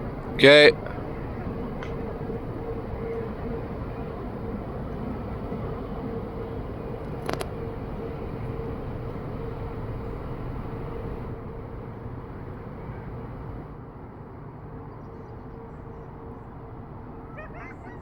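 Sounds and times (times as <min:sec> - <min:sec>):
diesel engines rumbling: 0:00.0 - 0:13.8.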